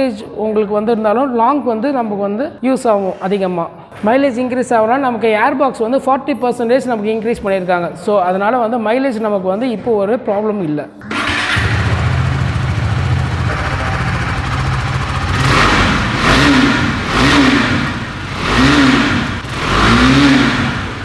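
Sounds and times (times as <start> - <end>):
motorcycle engine idling and revving: 11.0 - 21.0.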